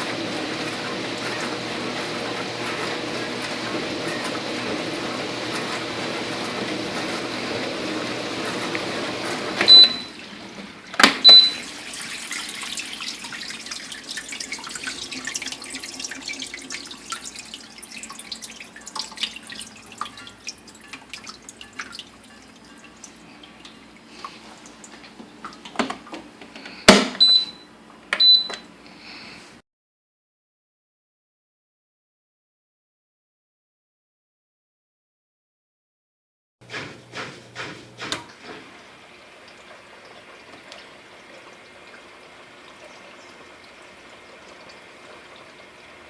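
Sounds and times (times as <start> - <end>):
dishwasher spraying water: 0.0 - 27.6, 36.6 - 46.0
small drips and ticks: 12.6 - 25.7.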